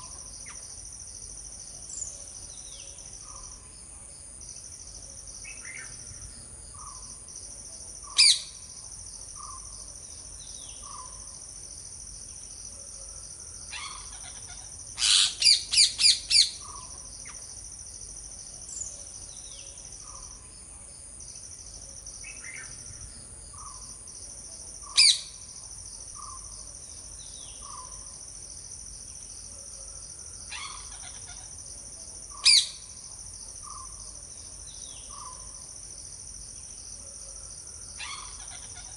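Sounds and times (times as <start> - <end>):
insects chirring: 0.0 - 38.9
parrots screeching: 15.0 - 16.1.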